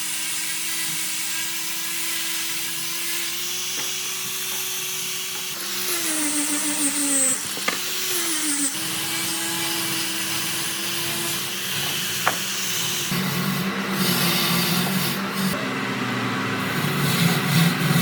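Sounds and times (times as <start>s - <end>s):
power tool motor cutting wood: 0.0s - 18.0s
sharp knocks: 11.7s - 13.0s.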